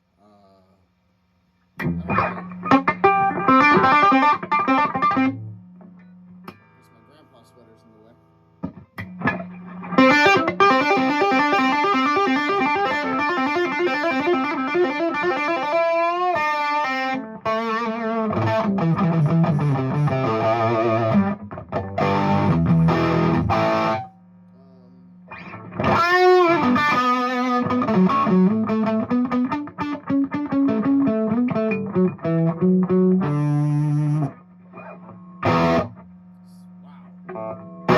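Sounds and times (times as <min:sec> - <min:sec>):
amp hum: 0:00.0 - 0:37.9
electric guitar riffs: 0:01.8 - 0:24.7, 0:25.3 - 0:36.1, 0:36.8 - 0:37.9.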